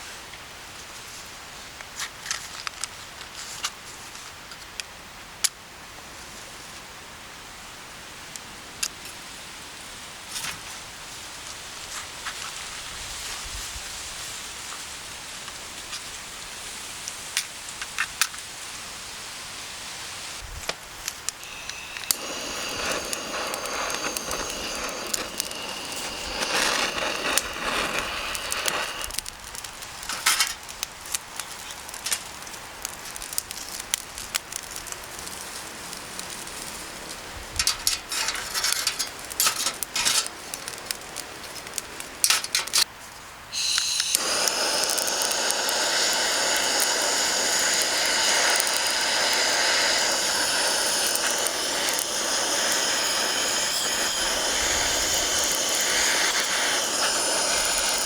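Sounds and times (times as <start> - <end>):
wood fire crackling: 19.3 - 58.0
thin high whistling: 21.3 - 29.2, 43.5 - 58.0.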